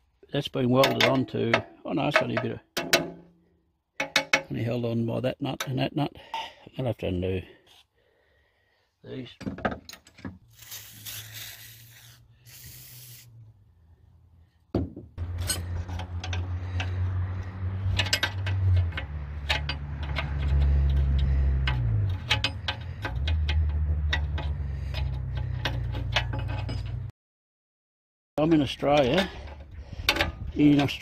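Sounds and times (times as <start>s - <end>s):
metal tools clinking and scraping: 0.6s - 3.2s, 15.2s - 27.1s
hiss: 10.6s - 13.3s.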